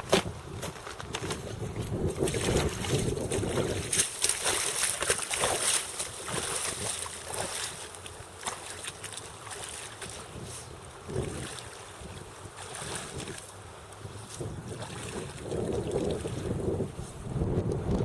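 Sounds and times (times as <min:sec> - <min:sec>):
moving water: 0:00.0 - 0:18.0
wind buffeting microphone: 0:00.0 - 0:18.0.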